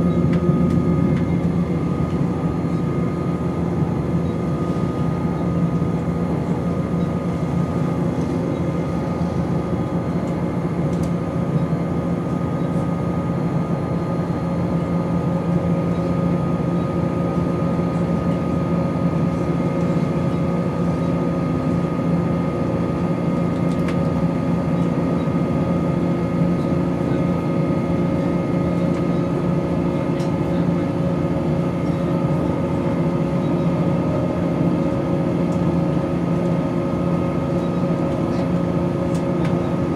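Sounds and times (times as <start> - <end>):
train diesel engine droning: 0.0 - 39.9.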